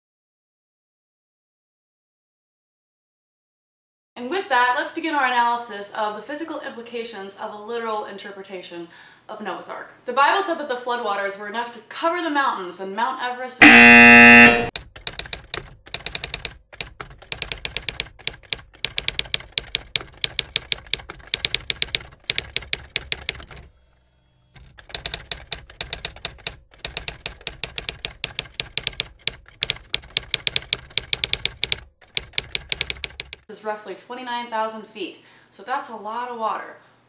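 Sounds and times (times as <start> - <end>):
keyboard typing clicks: 13.6 - 23.6, 24.7 - 33.4.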